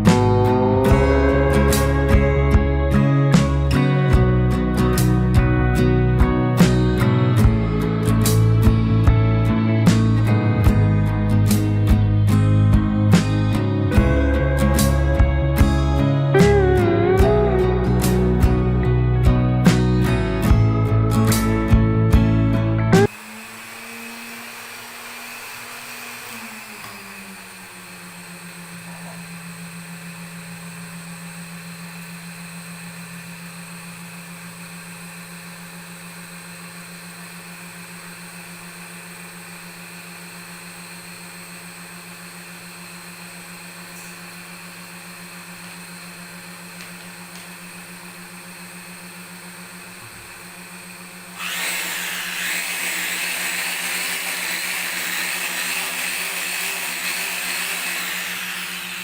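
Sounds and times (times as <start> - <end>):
hissy motor whine: 0.0 - 5.2, 13.7 - 19.6
sewing machine motor hum: 0.0 - 10.2, 23.0 - 59.0.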